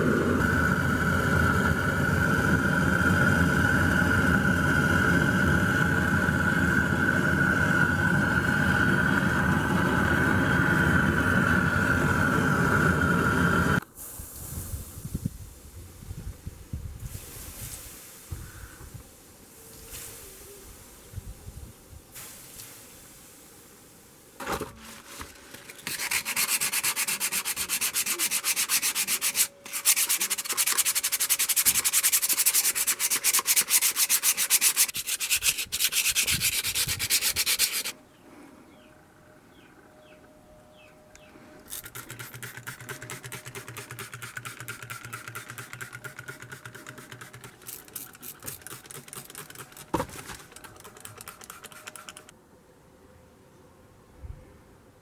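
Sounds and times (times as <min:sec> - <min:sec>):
sanding rasp on metal: 0:25.5 - 0:38.0, 0:41.7 - 0:52.3.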